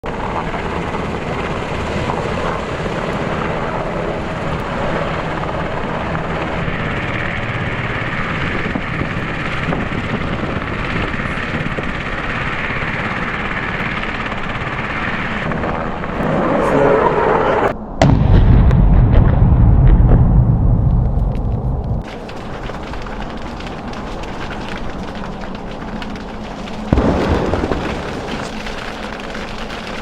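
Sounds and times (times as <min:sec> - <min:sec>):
helicopter rotor and turbine: 0:00.0 - 0:17.8.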